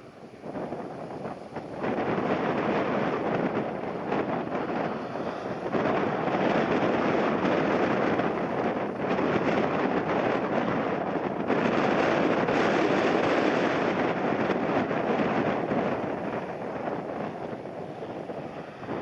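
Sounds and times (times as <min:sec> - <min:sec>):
jet airliner engine noise: 0:00.0 - 0:19.0
wind buffeting microphone: 0:00.0 - 0:19.0.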